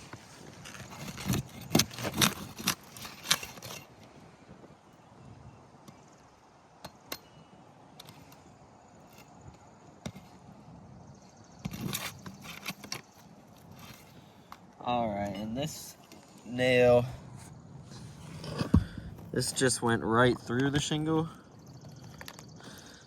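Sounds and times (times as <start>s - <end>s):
metal tool scraping shingles: 0.0s - 4.0s, 11.6s - 14.2s.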